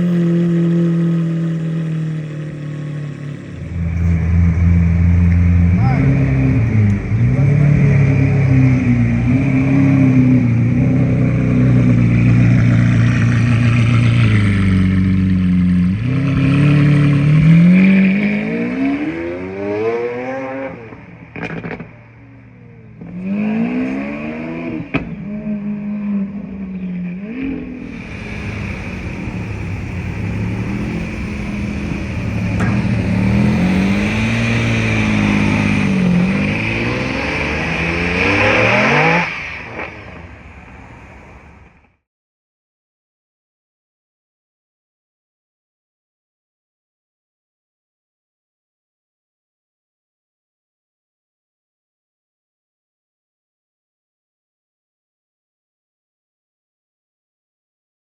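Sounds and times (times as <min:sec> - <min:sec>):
sports car engine revving: 0:00.0 - 0:21.9, 0:23.0 - 0:41.0.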